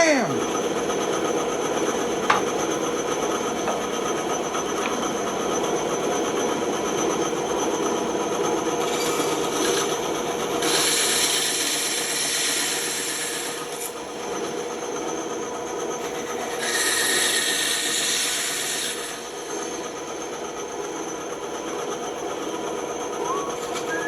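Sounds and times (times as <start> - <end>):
bandsaw humming: 0.0 - 5.6
saw blade cutting wood: 16.6 - 19.2.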